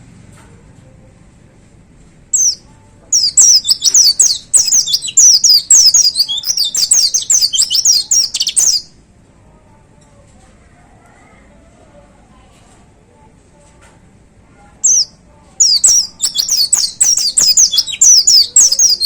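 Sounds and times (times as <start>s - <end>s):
bird whistling song: 2.3s - 2.6s, 3.2s - 8.9s, 14.8s - 19.0s.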